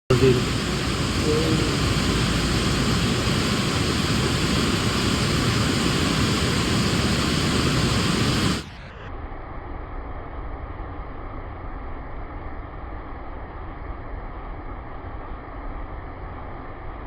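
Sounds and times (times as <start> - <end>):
loud broadband rushing noise: 0.1 - 9.3.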